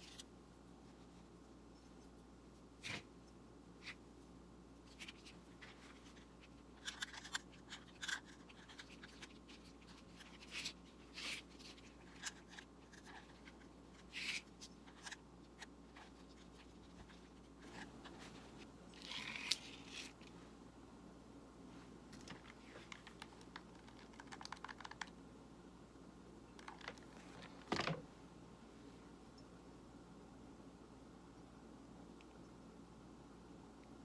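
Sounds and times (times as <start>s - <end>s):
objects being handled: 4.8s - 20.4s.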